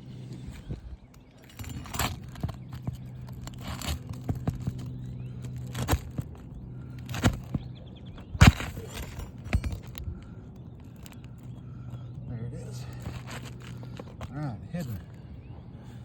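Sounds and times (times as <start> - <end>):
steady low hum: 0.0 - 16.0
hand tools scraping shingles: 1.4 - 7.7, 8.3 - 10.1, 12.8 - 14.2.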